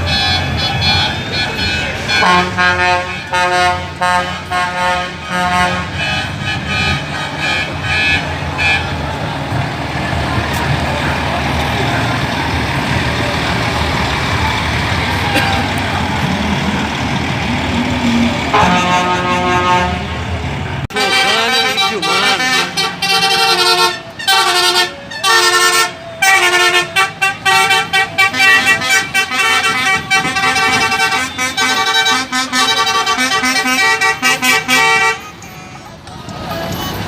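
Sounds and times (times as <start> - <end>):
truck air horn blasts: 0.0 - 9.2, 17.8 - 20.3, 20.9 - 35.9.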